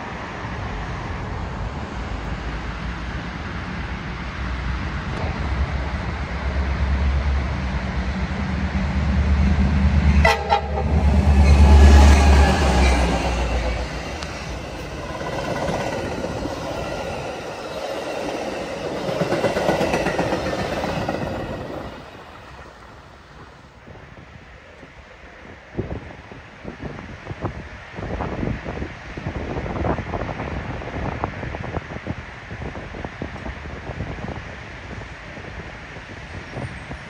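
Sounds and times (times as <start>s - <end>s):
diesel locomotive engine rumbling: 0.0s - 37.0s
train horn blast: 10.0s - 13.4s
train wheels clattering over rail joints: 11.4s - 22.2s.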